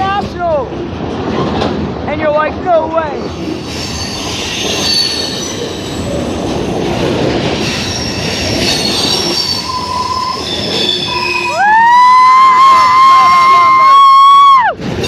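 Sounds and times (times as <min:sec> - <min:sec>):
wheel squeal: 0:03.2 - 0:06.9, 0:07.6 - 0:11.6
loud sustained screech: 0:07.7 - 0:13.9.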